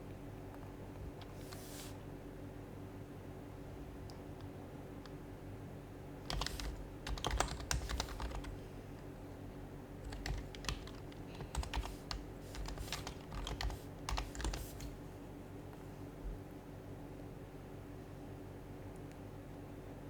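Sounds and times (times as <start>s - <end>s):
keyboard typing soft clicks: 6.3s - 9.1s, 10.0s - 15.0s.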